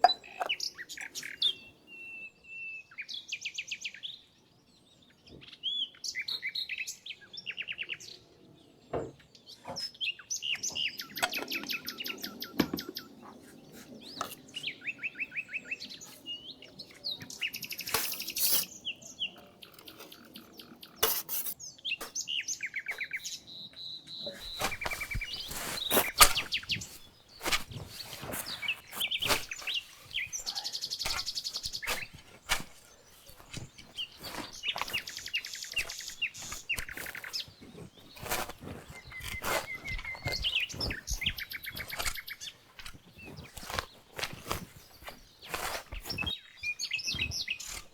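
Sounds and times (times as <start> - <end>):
songbirds chirping and trilling: 0.0 - 47.9.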